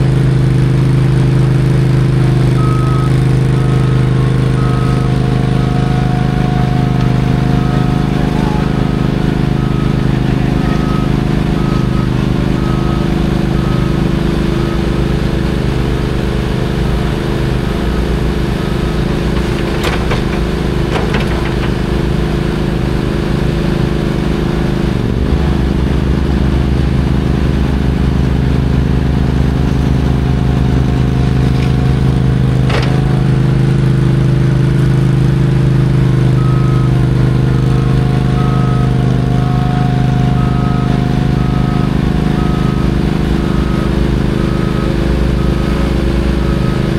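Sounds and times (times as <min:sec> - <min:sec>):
diesel engine rumbling: 0:00.0 - 0:46.9
reversing beeper: 0:02.4 - 0:16.0, 0:16.9 - 0:22.0, 0:36.1 - 0:46.9.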